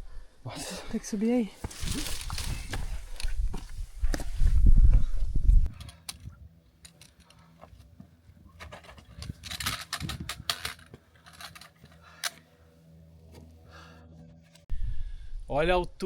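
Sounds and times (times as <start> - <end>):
backpack gear jangling: 8.5 - 12.4.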